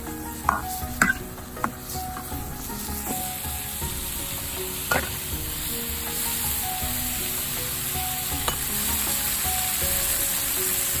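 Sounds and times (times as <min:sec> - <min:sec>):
food sizzling in a frying pan: 0:00.0 - 0:11.0
soft background music: 0:00.0 - 0:11.0
metal spatula knocking pan: 0:00.4 - 0:02.4, 0:04.9 - 0:05.2.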